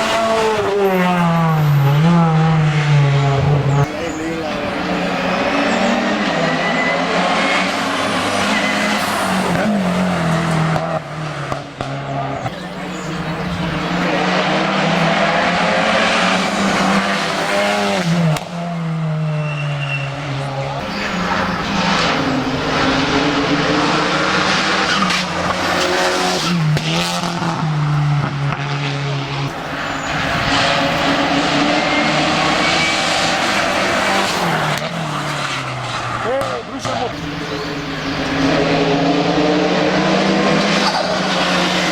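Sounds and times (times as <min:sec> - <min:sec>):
racing car engine at high revs: 0:00.0 - 0:41.9.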